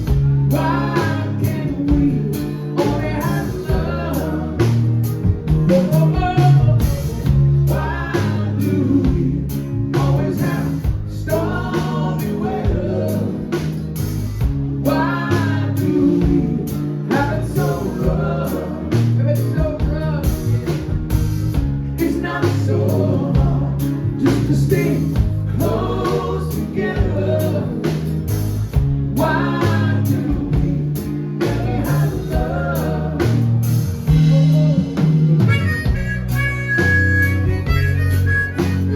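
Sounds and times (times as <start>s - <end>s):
live band playing: 0.0s - 38.9s.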